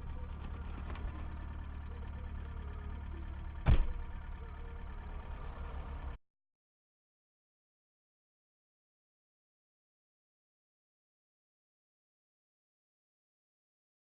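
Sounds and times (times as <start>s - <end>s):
car engine and road noise: 0.0s - 6.2s
sharp thump: 3.6s - 4.1s.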